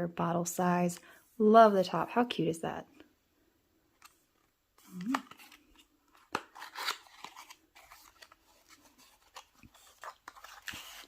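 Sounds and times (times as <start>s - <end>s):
packaging rustling: 4.0s - 11.0s.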